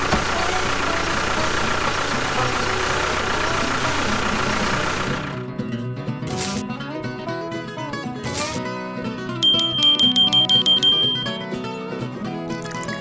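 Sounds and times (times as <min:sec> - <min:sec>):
small vehicle motor running: 0:00.0 - 0:05.6, 0:06.3 - 0:06.6, 0:08.3 - 0:08.6, 0:09.4 - 0:11.3
plucked acoustic guitar music: 0:00.0 - 0:13.0.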